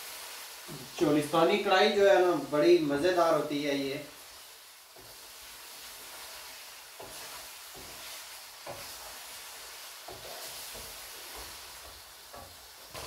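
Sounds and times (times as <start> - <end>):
chicken frying in oil: 0.0 - 13.0
wooden spoon knocking a pan: 7.0 - 9.1, 10.0 - 13.0.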